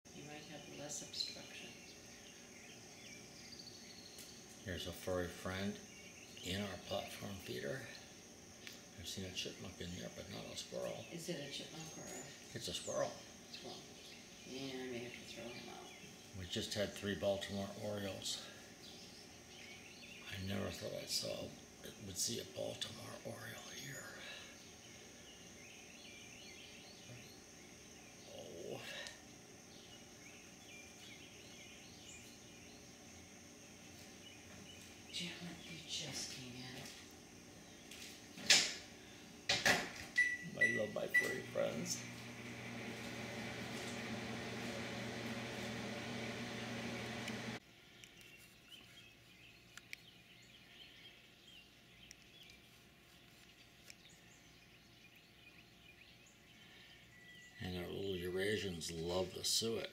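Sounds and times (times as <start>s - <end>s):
small birds chirping: 0.1s - 59.9s.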